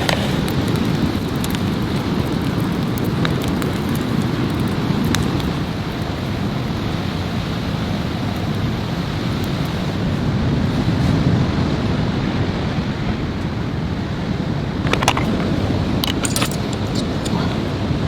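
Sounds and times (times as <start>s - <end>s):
rain: 0.0s - 18.0s
wind: 0.0s - 18.0s.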